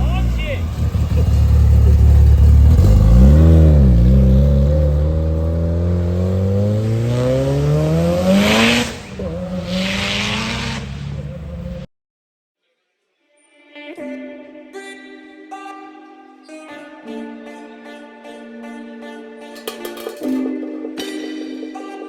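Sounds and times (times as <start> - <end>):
car engine revving and accelerating: 0.0 - 11.9.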